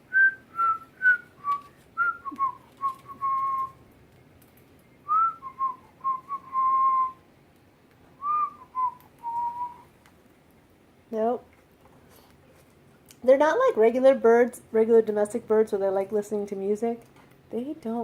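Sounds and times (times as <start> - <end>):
person whistling a tune: 0.1 - 3.8, 5.1 - 7.2, 8.2 - 9.8.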